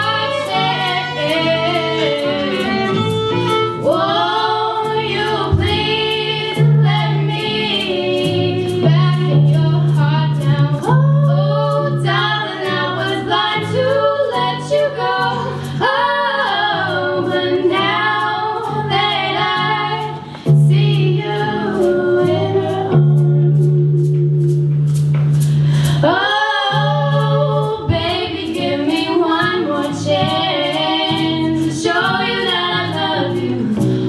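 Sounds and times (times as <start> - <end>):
person singing: 0.0 - 6.1
backing track with steady beat: 0.0 - 34.0
sustained bass line: 0.0 - 34.0.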